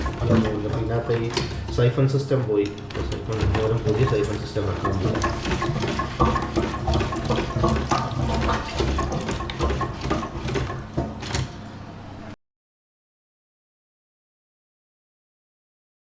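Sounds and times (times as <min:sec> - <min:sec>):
water running in toilet cistern: 0:00.0 - 0:11.6
knocks and clicks of cistern parts: 0:02.6 - 0:11.6.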